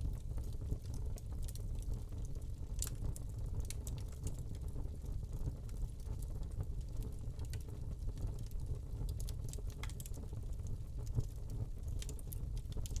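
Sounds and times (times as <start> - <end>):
low rumble of flames: 0.0 - 13.0
wood fire crackling: 0.1 - 13.0.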